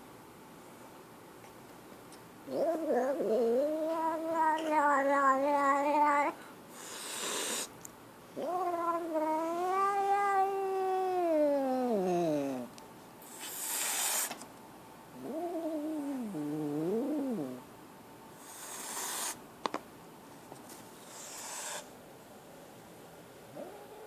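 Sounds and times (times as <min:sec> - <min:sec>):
kitten hissing: 0:02.5 - 0:07.7, 0:11.3 - 0:14.4, 0:18.4 - 0:19.4, 0:21.0 - 0:21.9.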